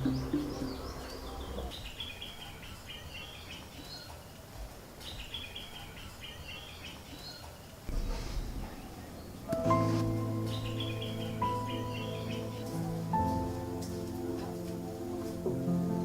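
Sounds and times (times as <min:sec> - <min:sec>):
small songbird chirping: 0:00.0 - 0:04.1, 0:09.2 - 0:15.3
faint background noise: 0:00.0 - 0:16.0.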